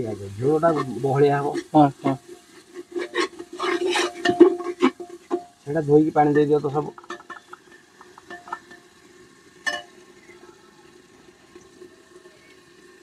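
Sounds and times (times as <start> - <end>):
meat sizzling in a pot: 0.0 - 13.0
ladle stirring and scraping: 0.4 - 8.9.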